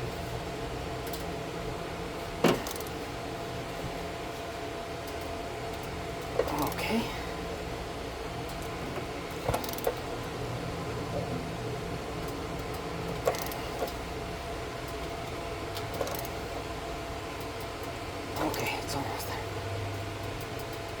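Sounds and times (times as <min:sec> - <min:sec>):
steady low hum: 0:00.0 - 0:21.0
socket wrench metallic clicks: 0:16.0 - 0:16.3.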